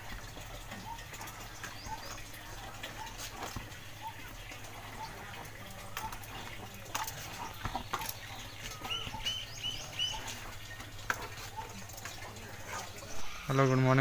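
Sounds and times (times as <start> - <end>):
clothes washed in buckets: 0.0 - 14.0
small bird chirping: 0.7 - 2.4, 7.3 - 10.8.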